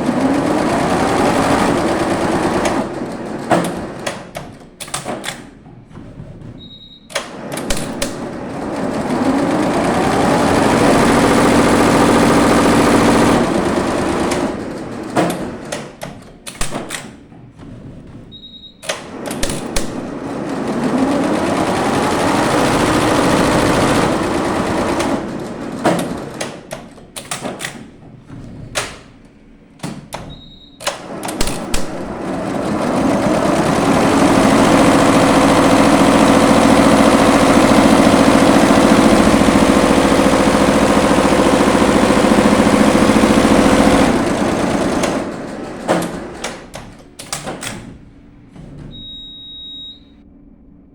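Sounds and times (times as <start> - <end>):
embroidery machine stitching: 0.0 - 5.5, 7.1 - 17.0, 18.8 - 27.9, 29.8 - 48.0
sharp machine clicks: 30.8 - 32.2
short electronic beep: 49.0 - 50.2.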